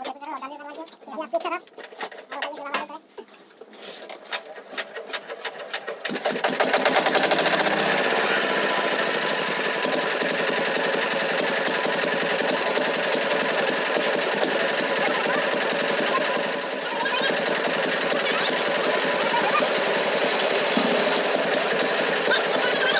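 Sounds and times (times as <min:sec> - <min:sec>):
machine running with fast rattle: 0:04.1 - 0:22.9.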